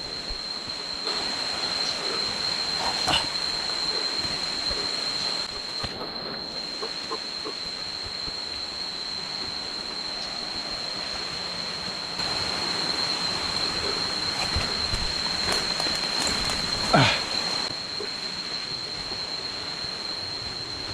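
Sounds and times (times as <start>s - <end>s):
cicadas droning: 0.0s - 20.9s.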